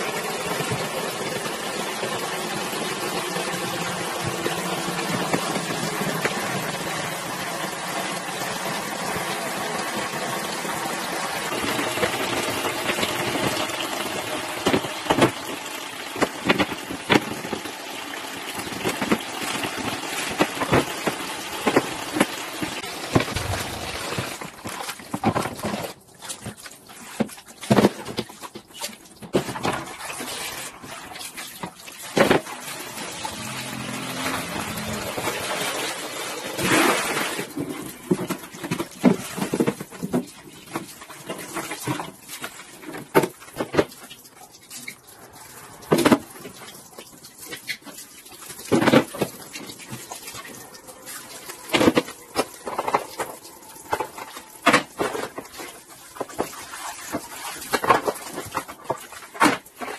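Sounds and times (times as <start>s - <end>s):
water running: 0.0s - 27.2s, 29.0s - 39.4s, 40.4s - 59.9s
knocks and clatter of handled items: 11.5s - 17.8s, 18.4s - 30.0s, 37.4s - 45.0s, 45.8s - 59.9s.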